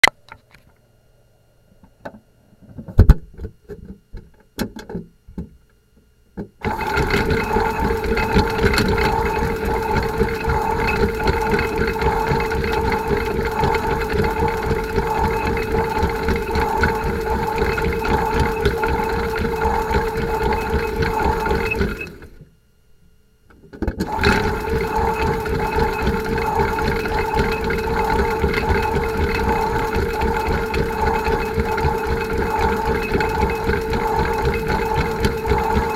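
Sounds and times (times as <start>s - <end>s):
toy washing machine motor humming: 6.6s - 22.4s, 23.8s - 35.9s.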